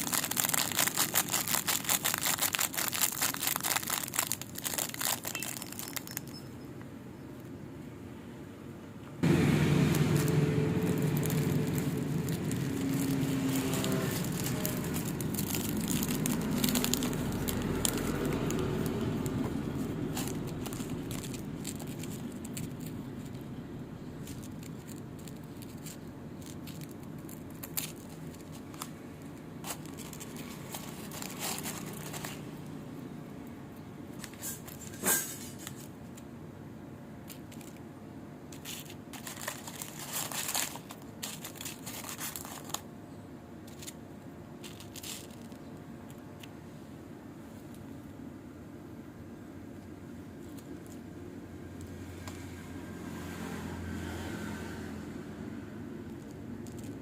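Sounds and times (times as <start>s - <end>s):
wafers cracking and crunching: 0.0s - 6.4s, 9.7s - 33.1s, 37.2s - 37.9s, 38.5s - 42.9s, 43.6s - 46.6s, 49.8s - 51.2s, 56.0s - 57.0s.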